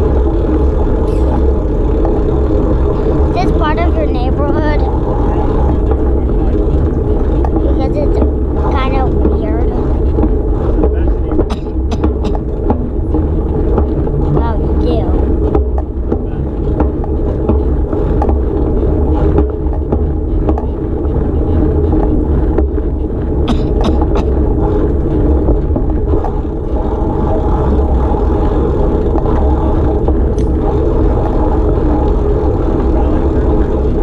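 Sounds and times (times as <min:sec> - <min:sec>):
small motorcycle engine running: 0:00.0 - 0:34.0.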